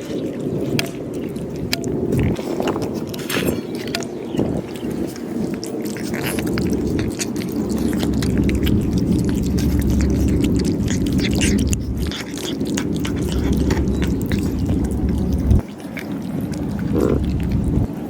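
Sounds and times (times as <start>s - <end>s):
cats chewing and crunching: 0.0s - 18.0s
low rumble: 6.1s - 15.6s, 16.4s - 18.0s.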